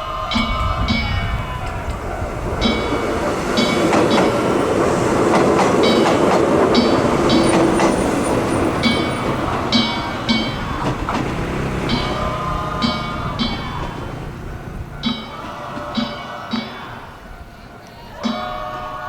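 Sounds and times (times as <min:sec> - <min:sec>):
train wheels clattering: 0:00.0 - 0:19.0
drum beating: 0:00.4 - 0:17.3
small gongs ringing: 0:05.8 - 0:19.0.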